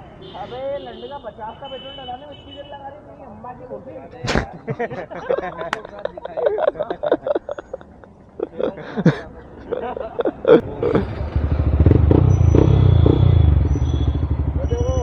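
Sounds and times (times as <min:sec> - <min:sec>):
motorcycle engine running: 0:10.6 - 0:15.0.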